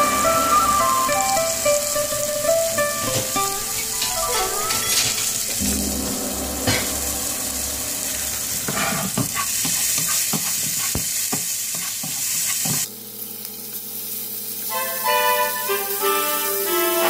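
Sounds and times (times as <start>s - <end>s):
steady hum: 0.0s - 9.7s
onions sizzling in oil: 0.0s - 17.0s.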